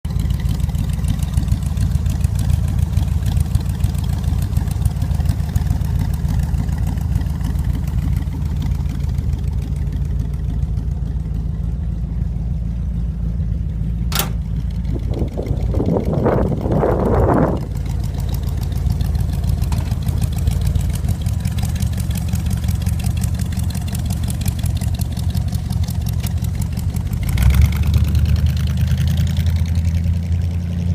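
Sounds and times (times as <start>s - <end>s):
truck engine idling: 0.0s - 30.9s
sharp click: 14.1s - 14.4s.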